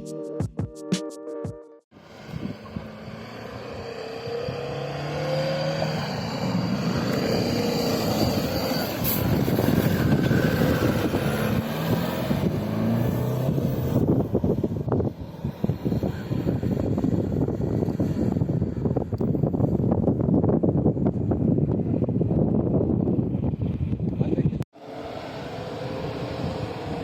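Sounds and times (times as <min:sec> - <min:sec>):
intro music: 0:00.0 - 0:01.8
suv engine revving under load: 0:02.2 - 0:18.8.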